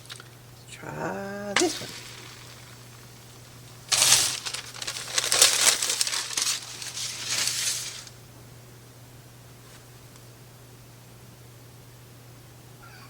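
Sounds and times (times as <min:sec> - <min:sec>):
parchment paper crinkling: 0:01.6 - 0:08.2.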